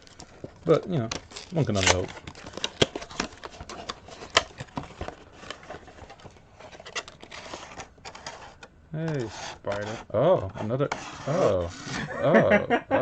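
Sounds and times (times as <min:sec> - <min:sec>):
plastic clicks and rustling: 0:00.0 - 0:09.2.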